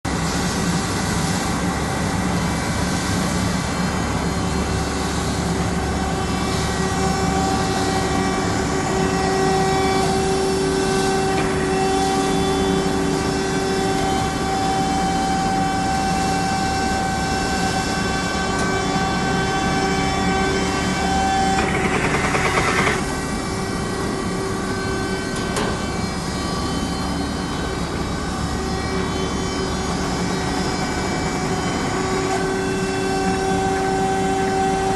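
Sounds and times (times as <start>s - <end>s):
machine drone with whining tones: 0.1s - 34.9s
loud rattling clatter: 21.0s - 23.3s.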